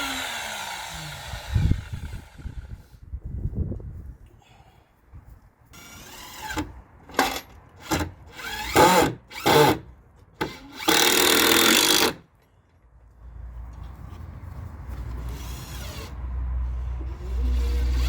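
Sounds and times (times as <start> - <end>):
power drill driving screws: 0.0 - 2.6, 5.8 - 9.8, 10.4 - 12.2, 17.3 - 18.0.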